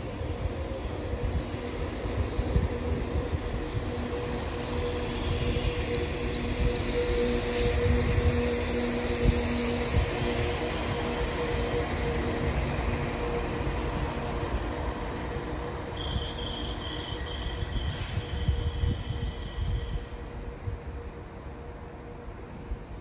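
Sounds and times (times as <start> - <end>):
train running with mechanical hum: 0.0 - 23.0.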